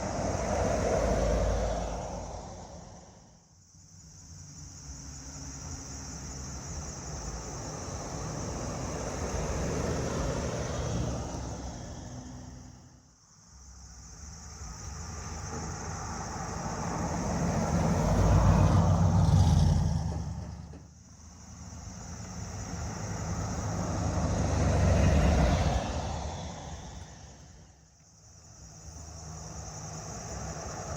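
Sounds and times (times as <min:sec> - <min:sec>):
car engines running: 0:13.7 - 0:27.8.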